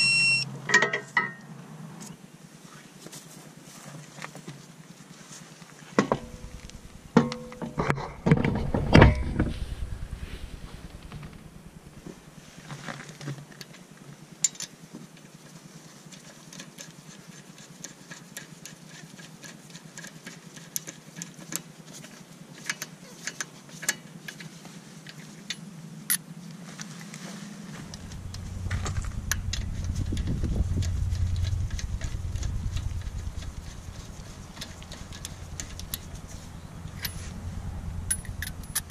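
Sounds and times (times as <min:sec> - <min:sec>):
low rumble: 0:06.2 - 0:07.2, 0:08.0 - 0:12.6, 0:27.7 - 0:38.9
wheel clanking onto hub: 0:27.8 - 0:38.9
metallic clicks of lug nuts: 0:38.1 - 0:38.9.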